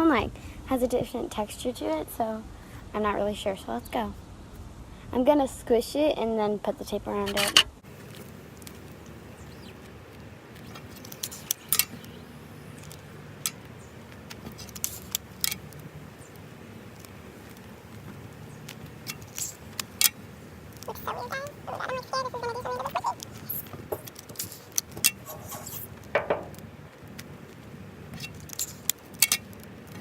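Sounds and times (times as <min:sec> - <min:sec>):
tape pulled off roll crackling: 0:07.4 - 0:21.0, 0:22.7 - 0:30.0.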